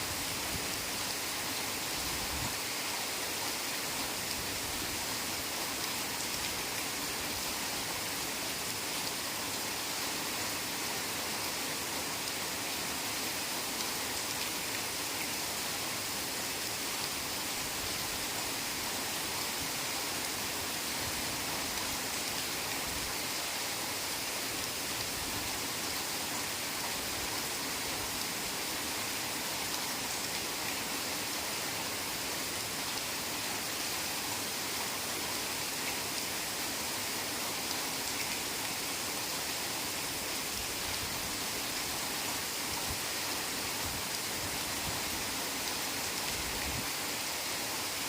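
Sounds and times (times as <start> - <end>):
heavy rain: 0.0 - 48.0.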